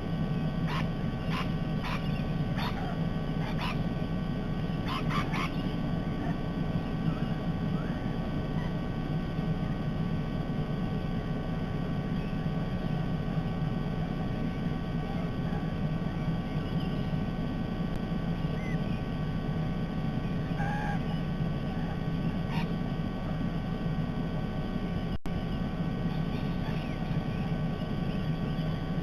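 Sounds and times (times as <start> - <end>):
low background rumble: 0.0 - 29.0
faint bird chirps: 0.3 - 8.8, 12.1 - 13.0, 14.2 - 17.3, 18.3 - 19.2, 20.2 - 22.8, 24.8 - 29.0.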